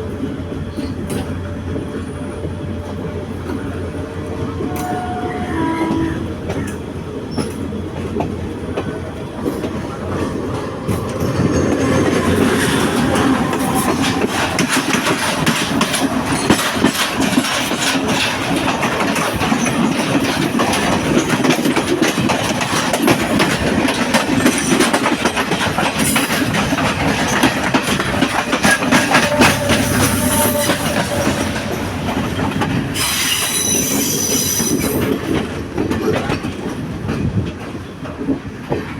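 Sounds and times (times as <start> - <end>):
train wheel clatter: 0.0 - 38.9
high wheel squeal: 28.6 - 35.0.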